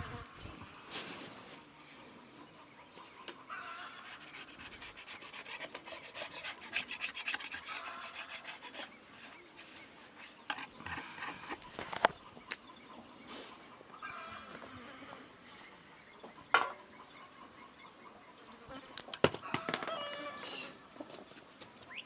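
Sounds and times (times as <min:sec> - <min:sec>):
hand tool rasping wood: 0:04.0 - 0:11.6.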